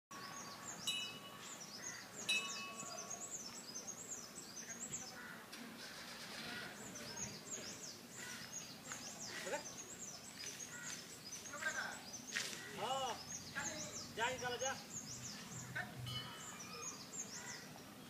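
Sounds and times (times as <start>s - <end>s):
small birds chirping: 0.1s - 18.0s
sharp ringing notes: 0.8s - 1.5s, 2.3s - 3.2s.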